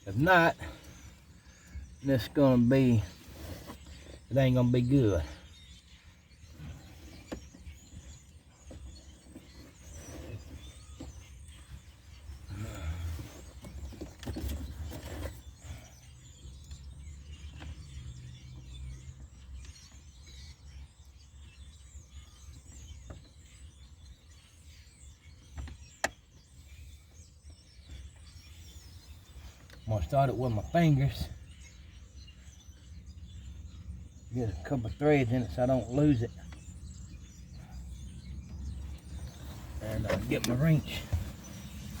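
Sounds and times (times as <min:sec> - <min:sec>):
faint birds chirping: 0:00.0 - 0:42.0
rustling and handling noise: 0:06.6 - 0:15.6, 0:38.6 - 0:42.0.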